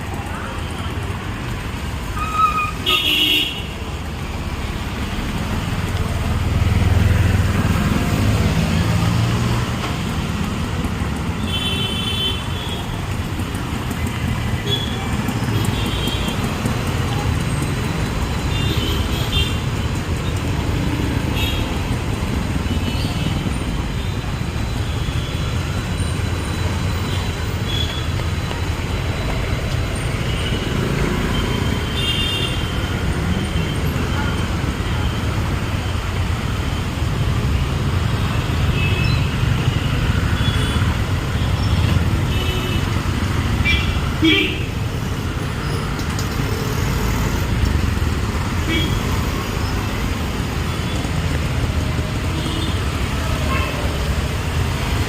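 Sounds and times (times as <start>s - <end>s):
vehicle engines rumbling past: 4.0s - 11.4s.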